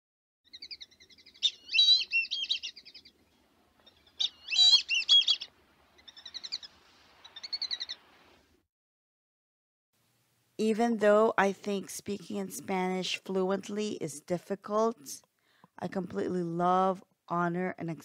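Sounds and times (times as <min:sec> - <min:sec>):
bird chirps and trills: 0:00.5 - 0:03.2, 0:03.8 - 0:08.0
bird warbling phrases: 0:01.4 - 0:02.8, 0:04.2 - 0:05.5.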